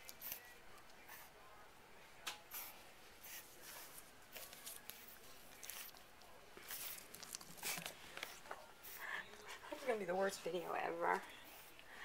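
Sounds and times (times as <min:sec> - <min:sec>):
scuffling and rustling: 0:02.6 - 0:08.5.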